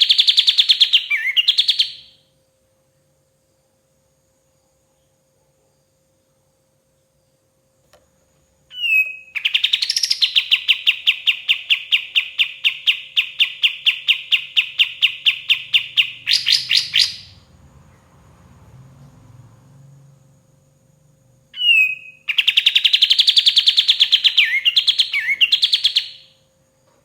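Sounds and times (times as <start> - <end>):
songbird trilling: 0.0 - 2.2, 8.7 - 17.4, 21.6 - 26.4.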